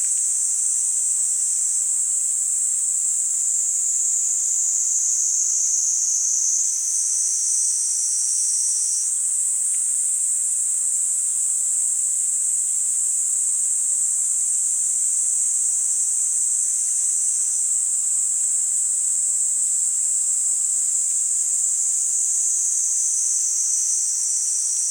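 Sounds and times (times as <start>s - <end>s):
cicadas buzzing: 0.0s - 10.6s, 18.9s - 24.9s.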